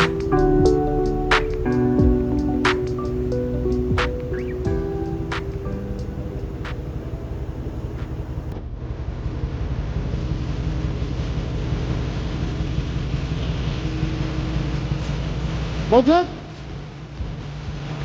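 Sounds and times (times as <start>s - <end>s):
background music: 0.0s - 8.5s
low engine rumble: 0.0s - 8.5s.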